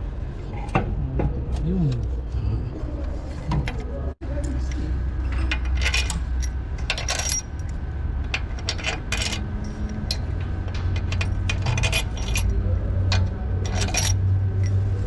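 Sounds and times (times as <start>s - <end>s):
tools and metal parts clinking: 4.6s - 15.0s.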